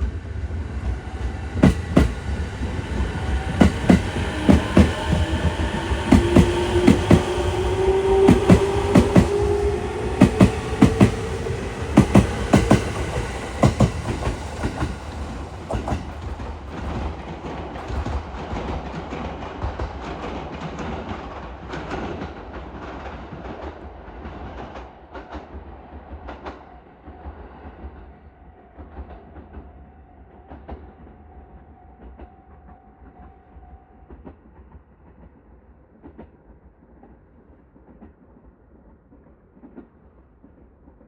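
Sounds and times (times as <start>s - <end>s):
electric train pulling away: 0.0s - 17.1s.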